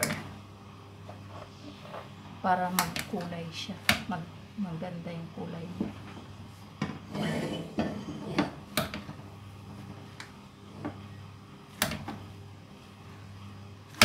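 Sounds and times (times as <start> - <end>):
low steady hum: 0.0 - 14.0
kitchen utensils and dishes clattering: 7.0 - 8.6.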